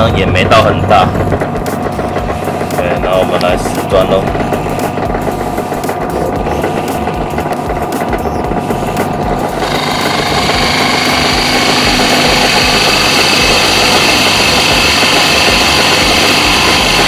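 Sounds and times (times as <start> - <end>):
drill press motor hum: 0.0 - 17.0
drill bit cutting into wood: 9.5 - 17.0.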